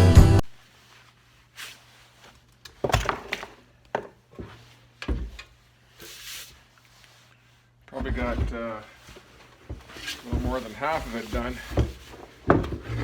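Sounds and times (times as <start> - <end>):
dull knocks and clunks: 4.0 - 5.5, 7.9 - 13.0.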